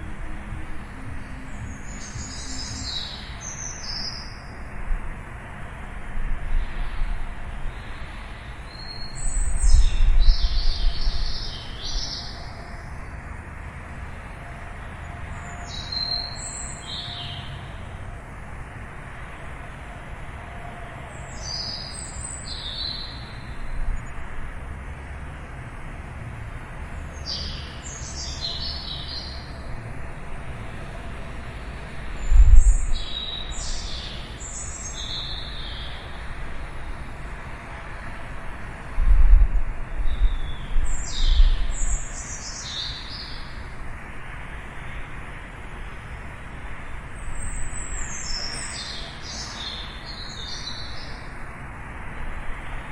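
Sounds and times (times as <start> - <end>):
songbird chirping: 0.0 - 4.8, 6.6 - 13.4, 14.1 - 18.0, 19.2 - 24.3, 27.1 - 37.5, 47.2 - 51.4.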